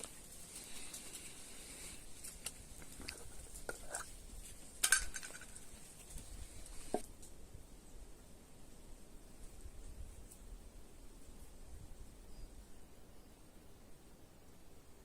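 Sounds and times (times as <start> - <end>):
objects knocking and clinking: 4.8 - 5.6.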